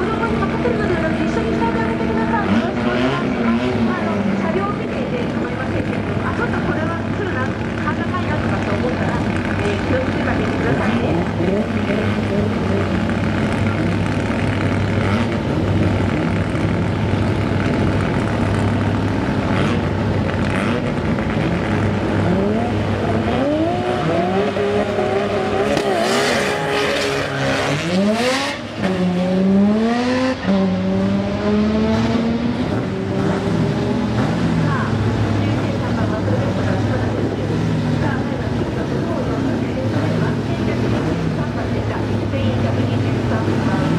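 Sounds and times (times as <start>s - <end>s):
car engine revving and accelerating: 1.8s - 4.8s, 7.7s - 38.1s.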